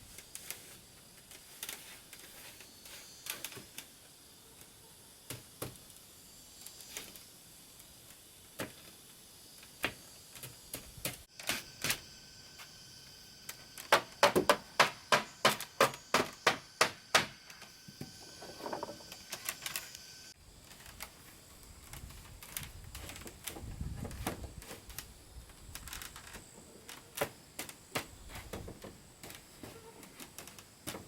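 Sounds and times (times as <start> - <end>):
hammering on wood: 13.9 - 17.4.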